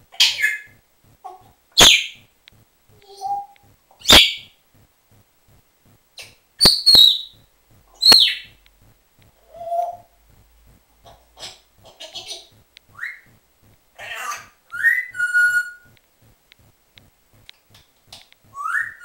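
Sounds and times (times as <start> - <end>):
parrot shrieking: 14.0 - 15.9.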